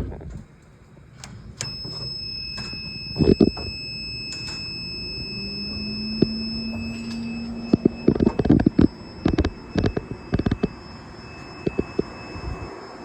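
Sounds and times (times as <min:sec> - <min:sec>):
low hum: 0:00.0 - 0:13.0
high-pitched machine whine: 0:01.6 - 0:13.0.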